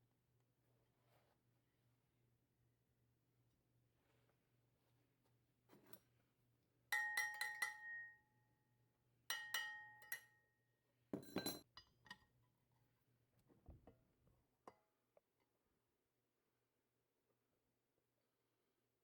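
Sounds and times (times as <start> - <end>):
hard object clinking: 7.0 - 8.1.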